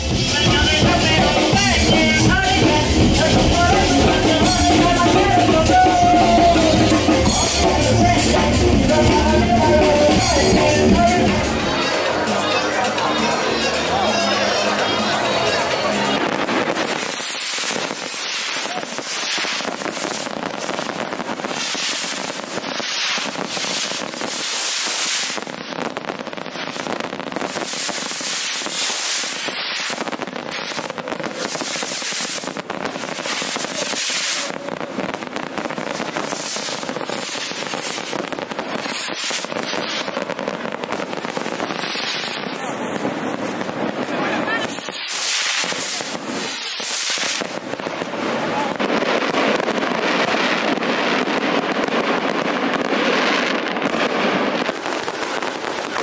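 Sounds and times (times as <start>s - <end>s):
firework bangs and crackling: 0.0s - 56.0s
hissing rocket launches: 16.4s - 48.8s.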